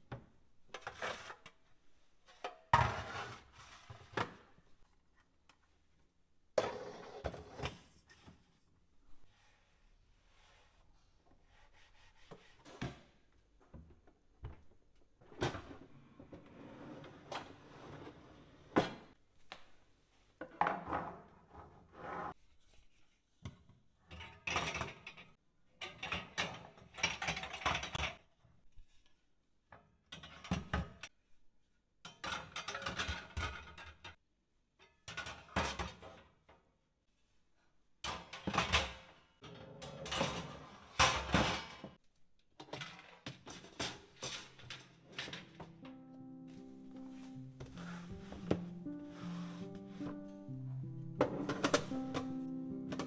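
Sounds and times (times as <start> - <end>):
household items knocking and rubbing: 47.6 - 50.3.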